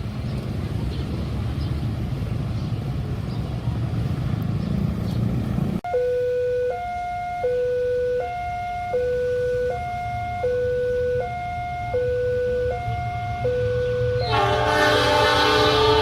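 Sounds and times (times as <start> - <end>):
level crossing two-tone alarm: 5.9 - 14.5.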